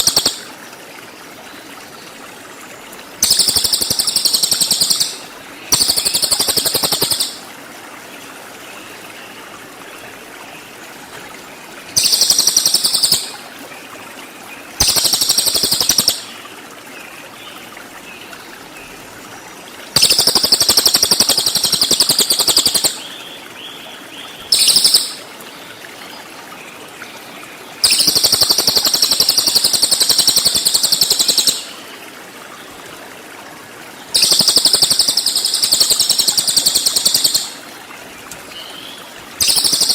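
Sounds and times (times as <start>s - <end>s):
songbird high-pitched trills: 0.0s - 0.5s, 3.2s - 7.4s, 12.0s - 13.4s, 14.8s - 16.3s, 20.0s - 23.0s, 24.5s - 25.3s, 27.8s - 31.8s, 34.2s - 37.6s, 39.4s - 39.9s.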